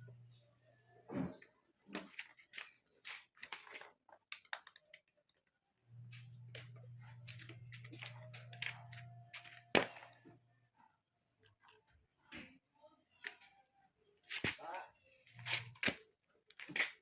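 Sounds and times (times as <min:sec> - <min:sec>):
low steady hum: 0:00.0 - 0:01.4, 0:05.8 - 0:10.8.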